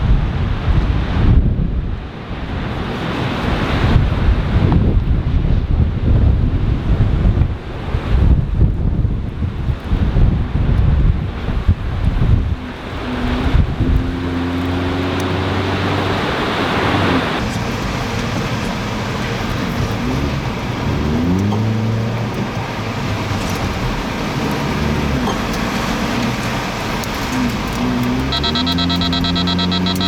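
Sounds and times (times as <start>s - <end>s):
road and wind noise: 0.0s - 30.0s
car engine accelerating: 11.1s - 30.0s.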